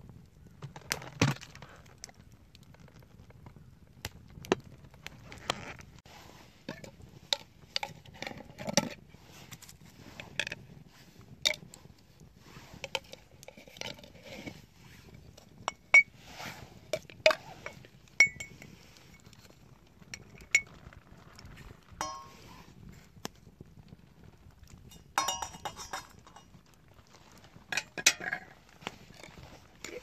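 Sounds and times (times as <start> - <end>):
clinks and knocks of hard objects: 12.8 - 14.6, 22.0 - 22.5, 24.8 - 26.7, 27.7 - 30.0.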